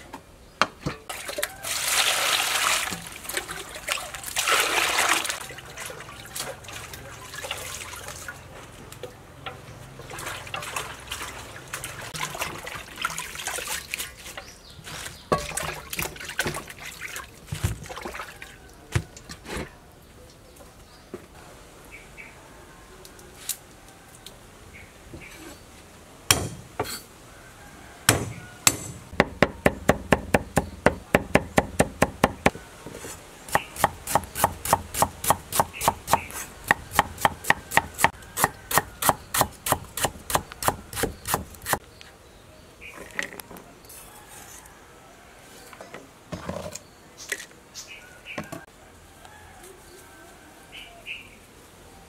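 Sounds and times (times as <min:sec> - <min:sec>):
knife chopping on wooden board: 0:28.1 - 0:32.5, 0:33.5 - 0:41.8.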